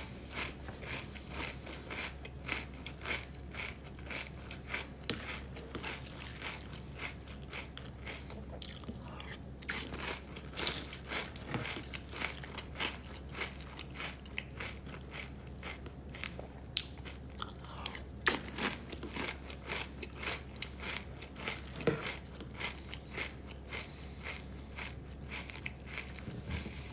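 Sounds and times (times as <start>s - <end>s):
steady low hum: 0.0s - 26.9s
crunching of crisp food: 0.1s - 26.9s.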